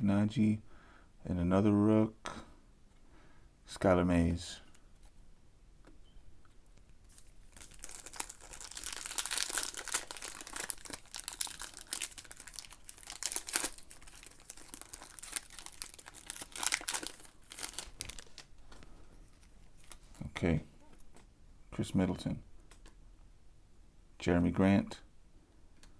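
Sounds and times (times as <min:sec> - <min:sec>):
wrapper being torn and crinkled: 0:07.1 - 0:18.6, 0:19.3 - 0:20.2.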